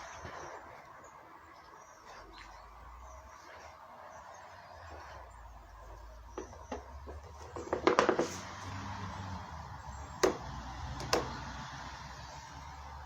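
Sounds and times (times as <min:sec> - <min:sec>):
sharp knocks and clicks: 0:06.3 - 0:08.4, 0:10.2 - 0:11.4.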